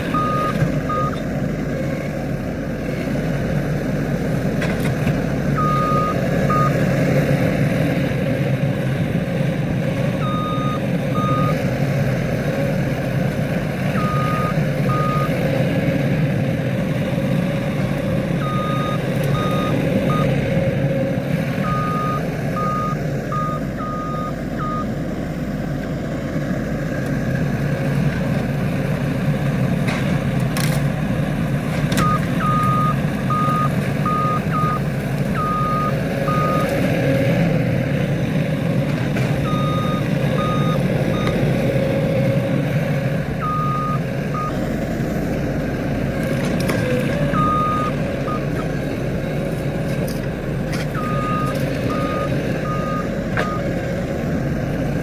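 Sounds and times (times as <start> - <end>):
reversing alarm beeping: 0.0 - 1.2, 5.6 - 6.8, 10.2 - 11.6, 13.9 - 15.4, 17.6 - 20.4, 21.6 - 25.0, 32.0 - 36.7, 39.4 - 41.6, 43.4 - 44.6, 47.0 - 48.6, 50.9 - 53.7
loader engine running: 0.0 - 55.0.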